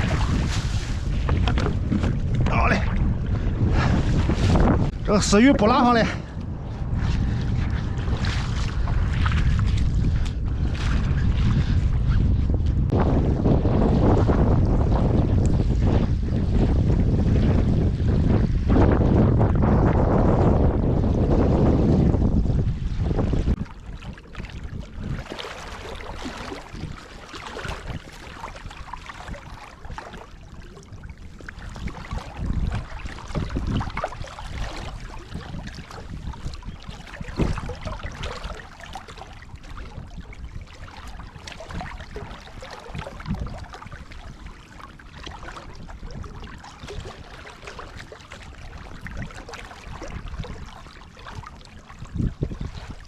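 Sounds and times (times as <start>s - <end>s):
water sloshing: 0.0s - 11.7s, 23.2s - 53.0s
wind buffeting microphone: 0.0s - 53.0s.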